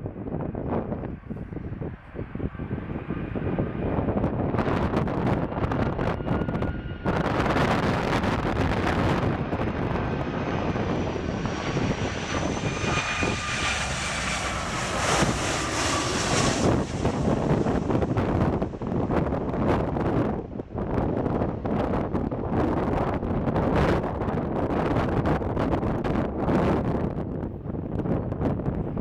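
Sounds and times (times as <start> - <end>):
wind buffeting microphone: 0.0 - 29.0
jet engines whining: 1.2 - 24.2.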